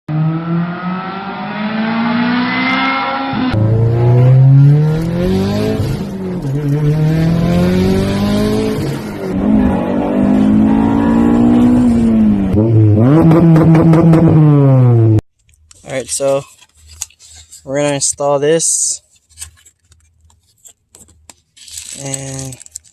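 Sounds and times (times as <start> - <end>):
vehicle engine revving: 0.1 - 15.2.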